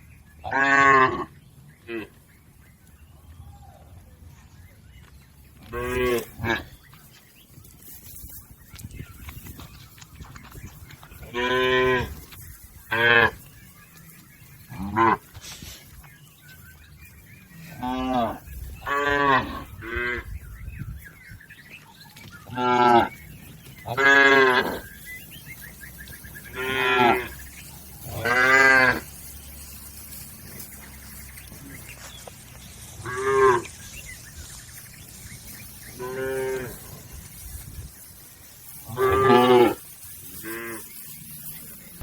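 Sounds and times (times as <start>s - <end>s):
cattle mooing: 5.7s - 6.7s, 23.9s - 25.0s, 26.4s - 29.2s, 35.9s - 37.0s, 38.8s - 41.1s.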